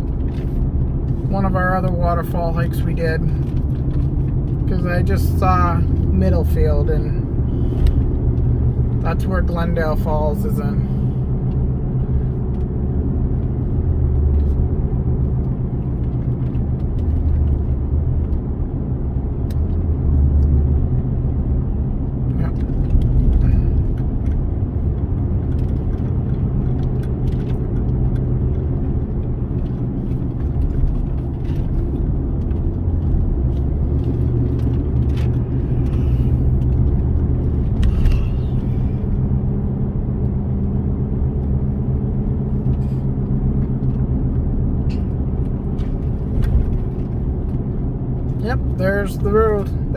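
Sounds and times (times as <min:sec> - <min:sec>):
car engine and road drone: 0:00.0 - 0:49.9.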